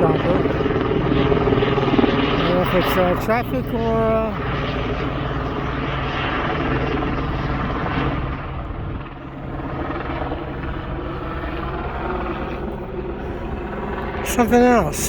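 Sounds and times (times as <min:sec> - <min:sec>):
helicopter flying overhead: 0:00.0 - 0:15.0.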